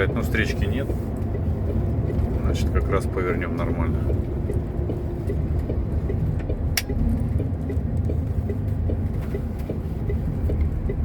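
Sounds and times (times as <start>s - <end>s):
truck engine running: 0.0s - 11.0s
turn signal ticking: 0.0s - 11.0s
sharp click: 6.8s - 7.0s.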